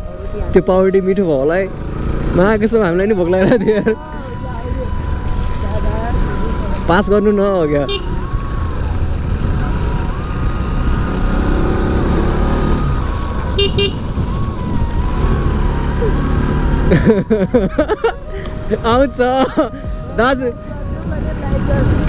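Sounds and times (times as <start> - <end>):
motorcycle engine running: 0.0 - 22.0
wind rumble on microphone: 0.0 - 22.0
horn beep: 7.8 - 8.4, 13.4 - 14.4.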